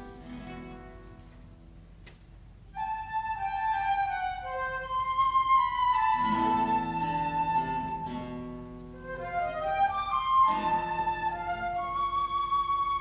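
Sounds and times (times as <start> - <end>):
classical guitar plucking chords: 0.0 - 13.0
flute melody: 2.7 - 13.0.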